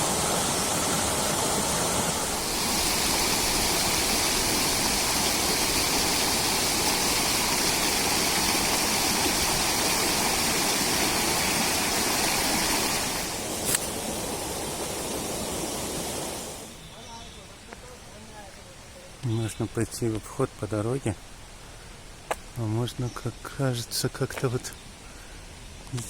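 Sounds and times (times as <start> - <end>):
small waterfall and stream rushing: 0.0 - 16.8.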